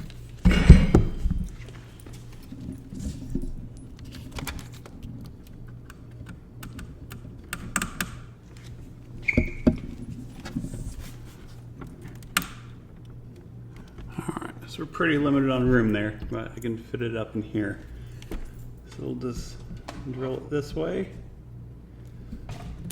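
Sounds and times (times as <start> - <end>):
knocks: 0.4 - 1.4.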